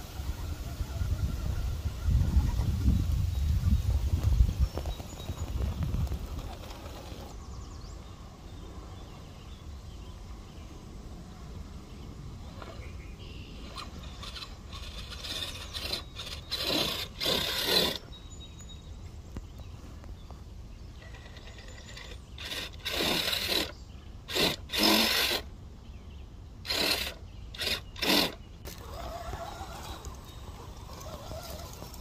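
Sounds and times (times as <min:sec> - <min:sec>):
electric motor and gears whirring: 0:04.8 - 0:07.4, 0:13.6 - 0:18.1, 0:21.0 - 0:25.5, 0:26.6 - 0:32.0.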